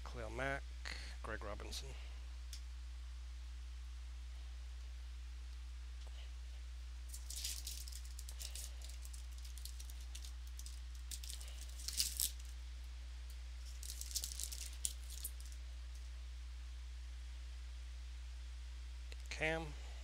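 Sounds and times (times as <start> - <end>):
low electrical hum: 0.0 - 20.0
trading cards flipped by hand: 7.1 - 12.5, 13.6 - 15.6.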